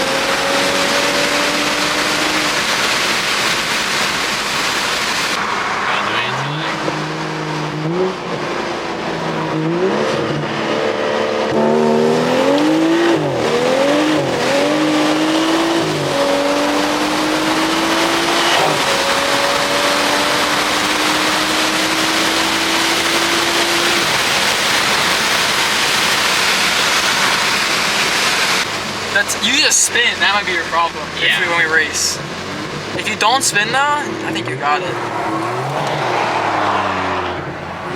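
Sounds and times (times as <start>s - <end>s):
car engine accelerating through gears: 0.0s - 3.3s, 5.2s - 29.2s, 30.5s - 37.9s
wind and road noise: 0.0s - 37.9s.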